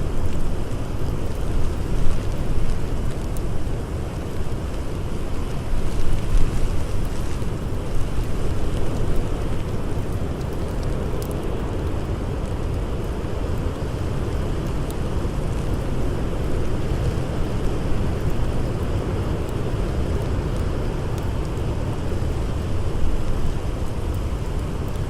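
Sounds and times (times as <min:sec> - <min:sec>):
faint campfire crackles: 0:00.0 - 0:25.0.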